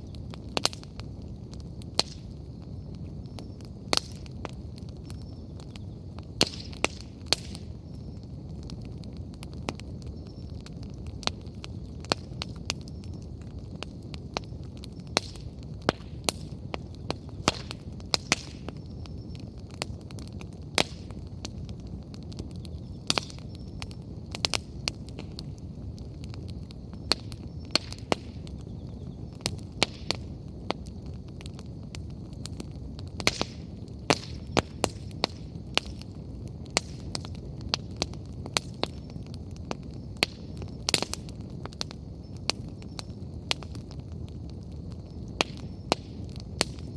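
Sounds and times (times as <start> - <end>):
bonfire crackling and popping: 0.0 - 46.9
low fire rumble: 0.0 - 46.9.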